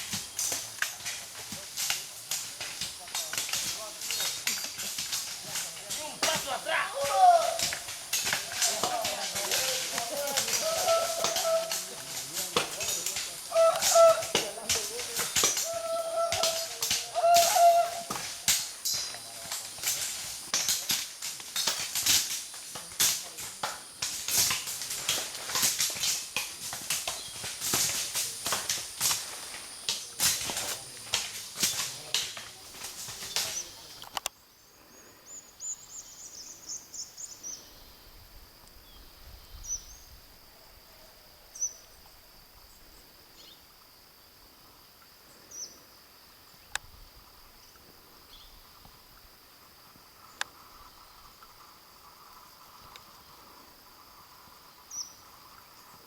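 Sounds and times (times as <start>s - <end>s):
loud crackling and knocking: 0.0s - 34.1s
high insect drone: 0.0s - 56.0s.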